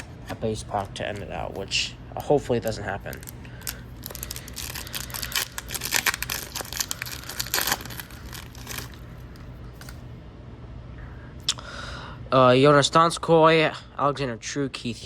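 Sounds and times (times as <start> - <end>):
card pack wrapper crinkling: 0.0 - 10.0.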